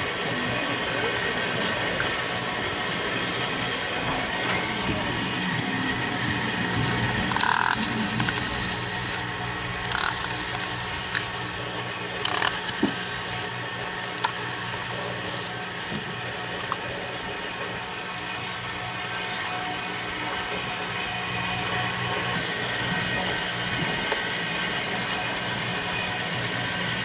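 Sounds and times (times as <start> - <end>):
steady background hum: 0.0 - 27.0
hand tools clicking and knocking: 7.3 - 11.3.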